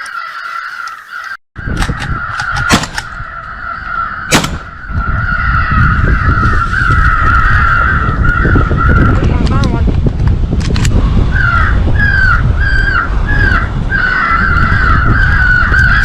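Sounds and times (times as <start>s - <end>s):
crows cawing: 0.0s - 9.2s, 11.3s - 16.0s
wind rumbling on microphone: 1.6s - 16.0s
sharp cracks: 1.7s - 3.2s, 4.3s - 4.8s.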